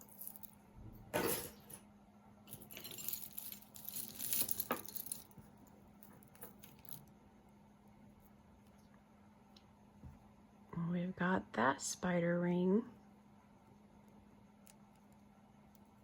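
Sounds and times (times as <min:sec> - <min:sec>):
jewelry clinking and jangling: 0:00.0 - 0:01.8, 0:02.5 - 0:07.1.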